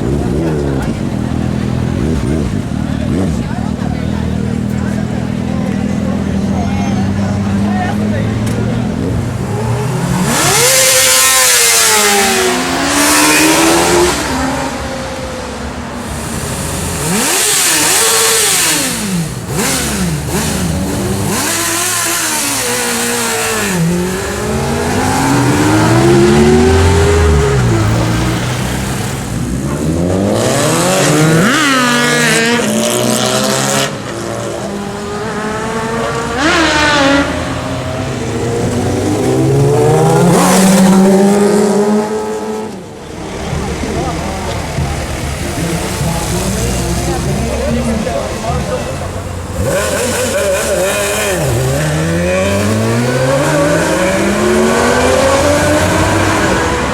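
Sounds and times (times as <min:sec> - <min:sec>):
motorcycle engines revving past: 0:16.2 - 0:56.9.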